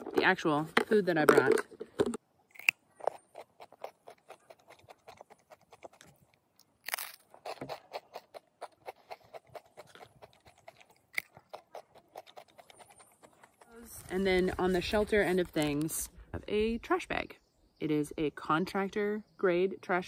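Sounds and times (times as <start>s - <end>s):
person chewing food: 2.5s - 13.9s.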